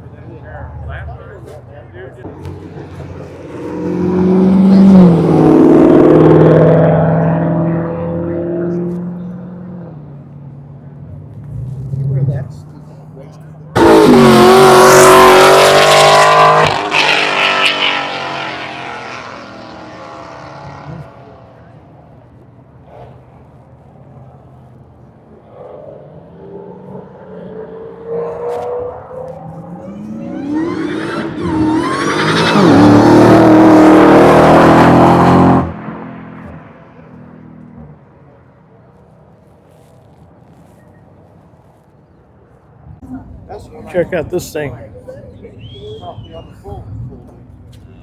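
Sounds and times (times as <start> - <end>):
car engine revving: 0.1 - 10.2, 13.6 - 22.3, 24.1 - 38.2.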